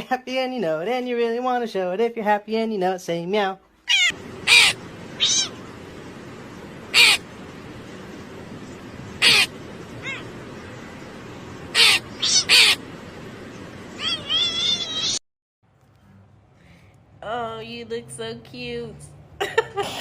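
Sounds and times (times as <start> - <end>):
steady background hiss: 3.8 - 15.2
animal's short sharp calls: 3.9 - 5.5, 9.2 - 10.2.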